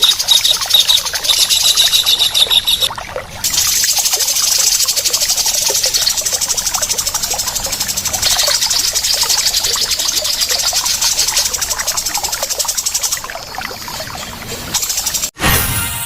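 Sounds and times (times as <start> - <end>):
high-pitched pulsing bird trill: 0.0 - 2.9
many short bird chirps: 0.0 - 2.9, 3.5 - 15.4.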